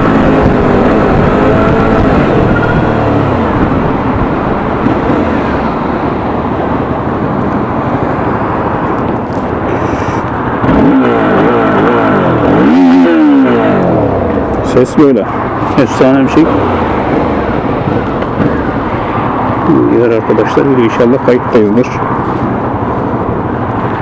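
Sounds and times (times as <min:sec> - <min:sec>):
motorcycle engine revving: 0:00.0 - 0:08.5, 0:09.1 - 0:20.0
wind noise: 0:00.0 - 0:10.7.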